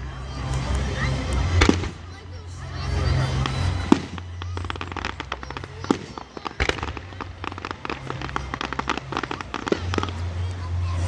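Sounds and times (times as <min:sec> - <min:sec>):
fireworks crackling: 0:00.4 - 0:11.0
firework bang: 0:01.6 - 0:02.0, 0:03.4 - 0:10.2.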